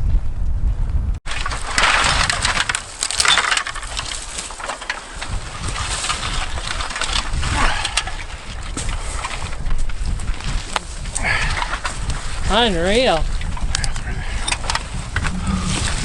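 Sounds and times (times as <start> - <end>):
aluminium cans clinking and crunching: 1.3 - 8.2
plastic bag rustling: 1.3 - 13.5.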